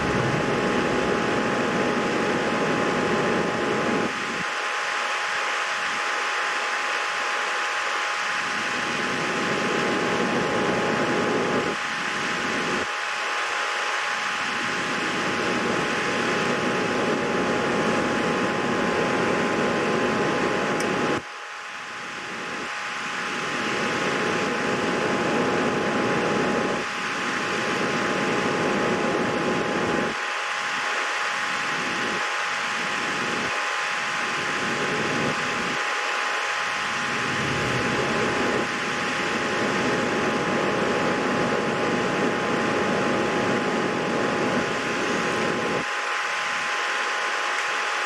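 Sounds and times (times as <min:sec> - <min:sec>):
faint whine tones: 0:00.0 - 0:48.0
fan whirring hiss: 0:00.0 - 0:48.0.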